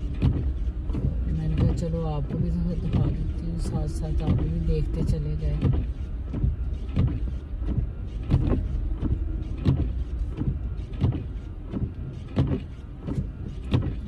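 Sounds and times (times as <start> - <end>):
engine and tyre rumble: 0.0 - 14.0
windshield wipers knocking: 0.0 - 14.0.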